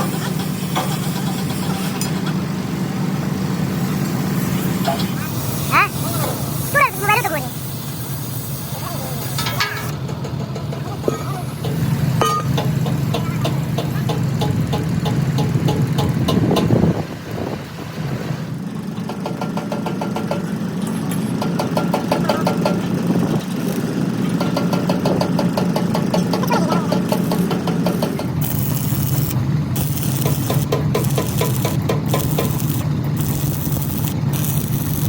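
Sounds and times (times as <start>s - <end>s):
engine running: 0.0s - 35.0s
rapid ticking: 27.0s - 35.0s.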